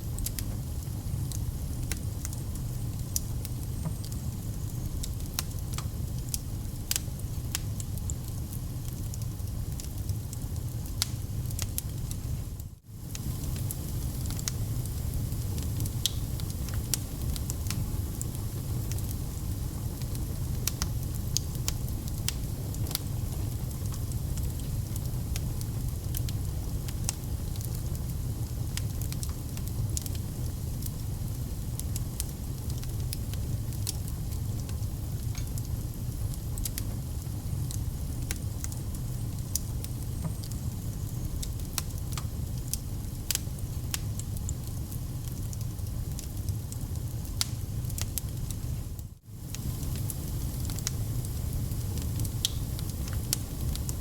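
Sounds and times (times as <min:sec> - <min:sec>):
low rumble of fire: 0:00.0 - 0:54.0
wood fire crackling: 0:00.0 - 0:54.0
sharp pops of fire: 0:13.1 - 0:19.2, 0:47.3 - 0:48.6, 0:49.4 - 0:54.0.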